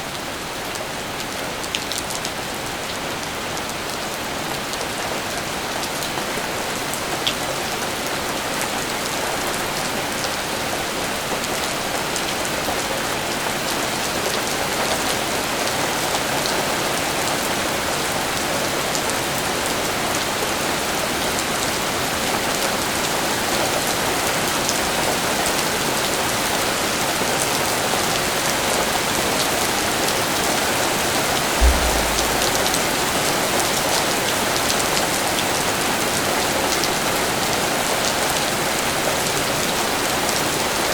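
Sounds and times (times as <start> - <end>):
dull thump: 31.6 - 33.1
steady rain falling: 31.6 - 33.4.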